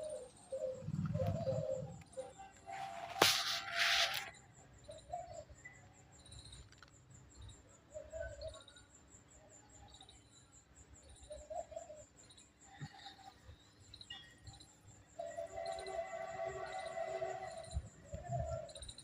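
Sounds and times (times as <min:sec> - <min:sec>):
bird cooing: 0:00.0 - 0:03.2, 0:18.2 - 0:18.9.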